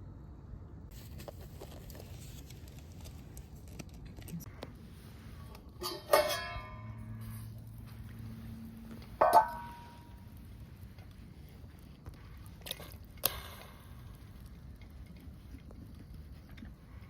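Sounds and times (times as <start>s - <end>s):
low steady background: 0.0s - 17.0s
utensil clinking on cookware: 5.7s - 7.2s, 9.2s - 10.2s.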